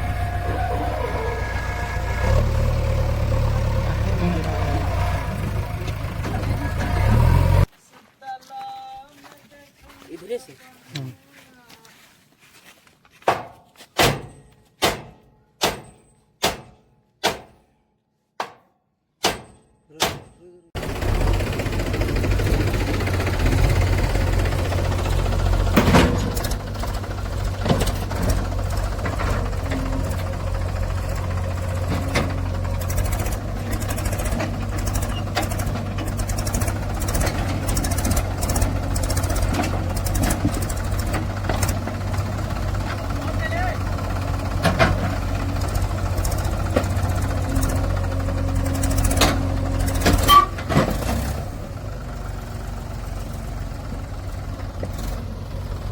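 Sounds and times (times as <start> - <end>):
diesel engine clattering: 0.0 - 7.7, 20.2 - 55.9
sharp knocks: 13.2 - 17.6, 18.4 - 20.4.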